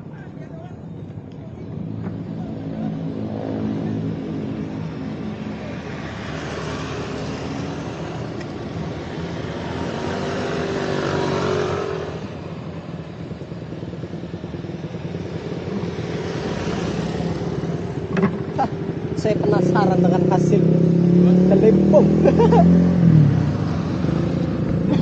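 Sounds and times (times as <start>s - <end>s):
motorcycle exhaust revving: 9.0s - 25.0s.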